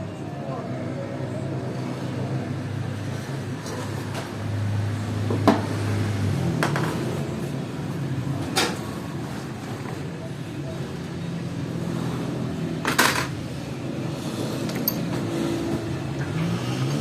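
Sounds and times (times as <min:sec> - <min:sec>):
metal tools clicking: 0:14.6 - 0:15.1.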